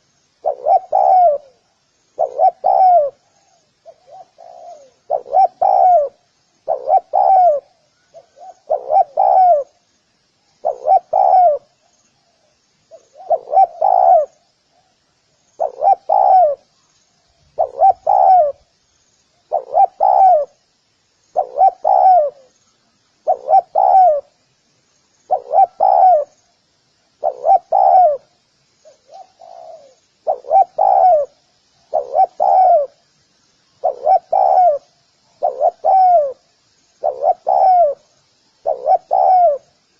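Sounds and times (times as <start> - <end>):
dove cooing: 0.0 - 9.8, 10.6 - 11.8, 12.9 - 14.9, 15.6 - 16.7, 17.5 - 18.7, 19.5 - 20.6, 21.4 - 22.6, 23.2 - 24.4, 25.3 - 26.4, 27.2 - 33.0, 33.8 - 39.7.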